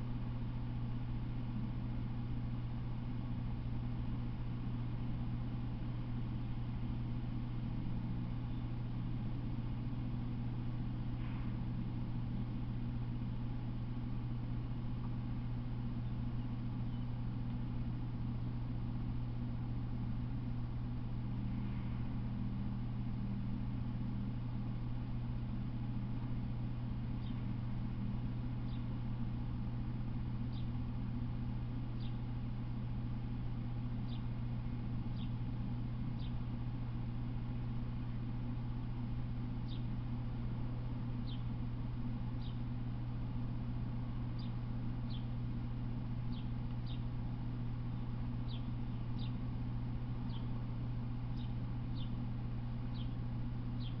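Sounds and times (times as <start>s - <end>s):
steady low hum: 0.0s - 54.0s
bird chirping: 16.0s - 17.1s, 27.2s - 27.5s, 28.7s - 28.9s, 32.0s - 32.2s, 34.1s - 34.3s, 35.1s - 35.4s, 36.2s - 36.4s, 39.6s - 39.9s, 41.2s - 41.4s, 42.4s - 42.6s, 44.4s - 45.3s, 46.3s - 47.1s, 48.4s - 49.4s, 50.2s - 50.5s, 51.3s - 52.2s, 52.9s - 53.2s, 53.8s - 54.0s.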